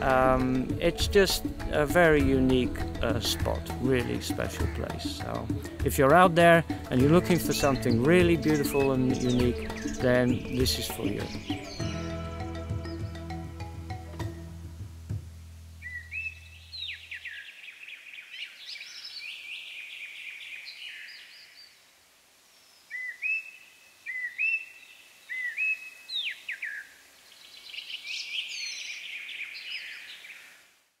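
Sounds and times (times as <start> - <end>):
birds singing and calling: 0.0 - 13.3, 15.8 - 21.7, 22.6 - 30.5.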